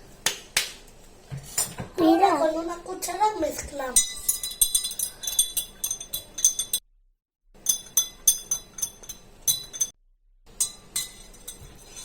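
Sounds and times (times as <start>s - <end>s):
spoon clinking in a glass: 4.0s - 6.8s, 7.6s - 10.0s, 10.6s - 12.0s.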